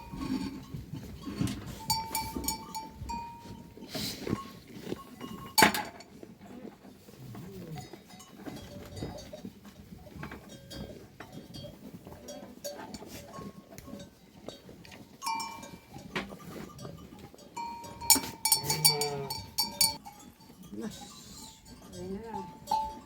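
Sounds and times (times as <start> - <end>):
animal neck bells clinking: 0.0 - 23.0
sheep bleat: 18.5 - 19.7.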